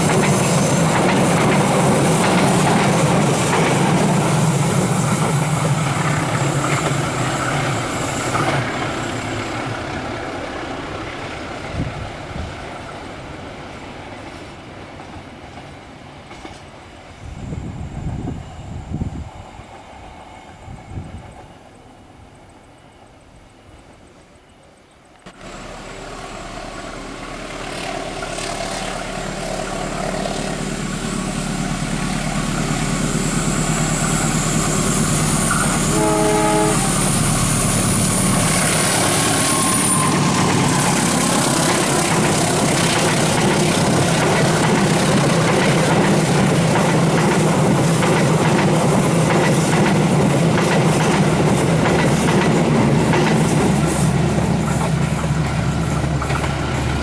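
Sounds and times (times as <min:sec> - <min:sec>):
train rumble with high whine: 0:00.0 - 0:57.0
train horn blast: 0:35.5 - 0:37.6.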